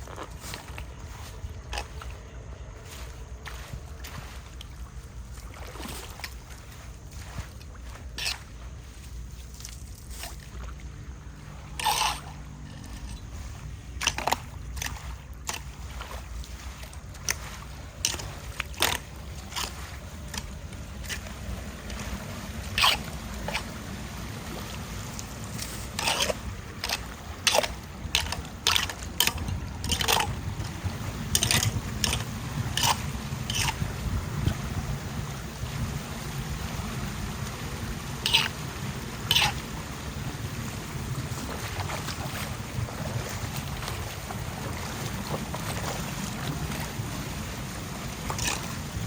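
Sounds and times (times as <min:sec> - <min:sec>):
floodwater rushing at a drain: 0:00.0 - 0:49.0
splashes and scrapes of debris: 0:00.0 - 0:49.0.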